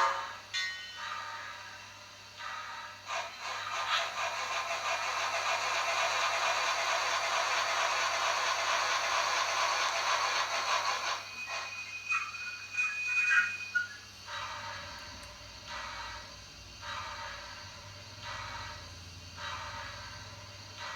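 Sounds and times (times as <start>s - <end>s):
steam whistle: 0.0s - 0.4s, 11.0s - 15.2s
steam hissing from small speaker: 0.0s - 20.9s.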